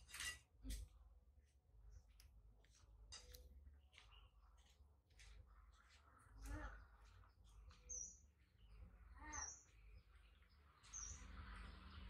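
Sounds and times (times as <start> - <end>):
high bird chirps: 6.4 - 12.0.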